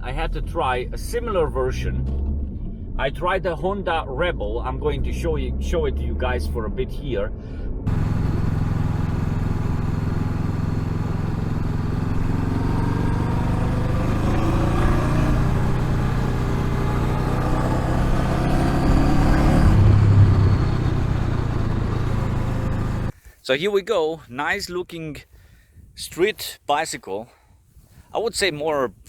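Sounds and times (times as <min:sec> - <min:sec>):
motorcycle engine accelerating: 0:07.9 - 0:23.1.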